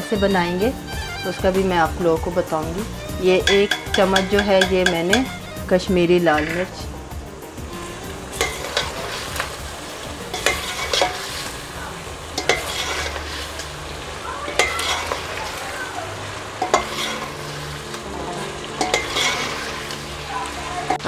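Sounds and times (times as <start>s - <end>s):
chicken sizzling in oil: 0.0s - 21.0s
metal spoon scraping pot: 2.9s - 5.7s, 6.3s - 6.9s, 7.7s - 11.7s, 12.3s - 13.8s, 14.5s - 15.6s, 16.6s - 20.0s.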